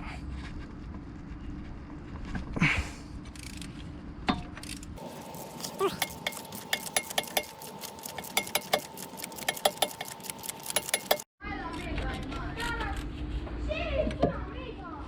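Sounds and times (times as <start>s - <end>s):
metal wrench clicking: 3.3s - 3.8s, 6.0s - 11.2s.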